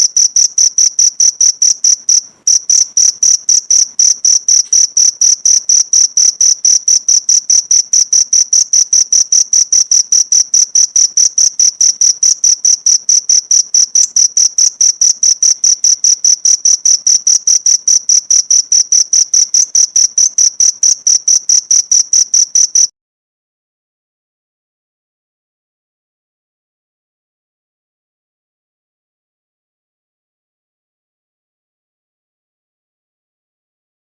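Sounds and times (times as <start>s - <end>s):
cricket chirping: 0.0s - 22.9s.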